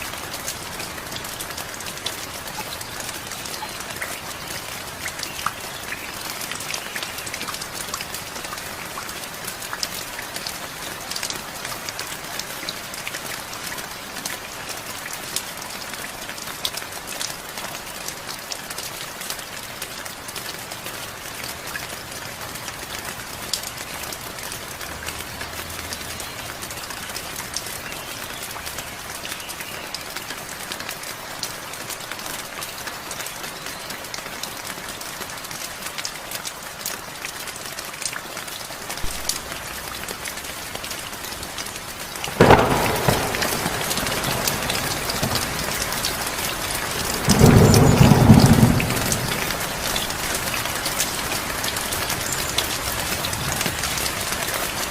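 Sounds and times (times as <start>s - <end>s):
steady rain falling: 0.0s - 54.9s
loud thunderclap: 42.3s - 45.9s, 46.6s - 49.8s
deep rumble of thunder: 42.3s - 50.2s.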